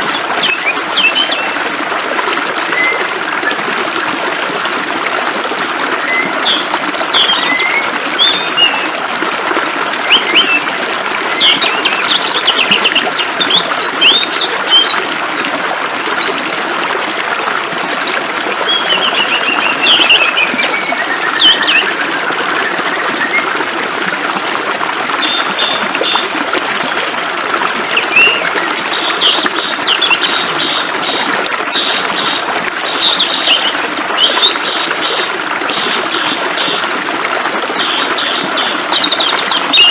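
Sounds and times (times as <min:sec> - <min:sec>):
songbirds chirping and singing: 0:37.8 - 0:39.9.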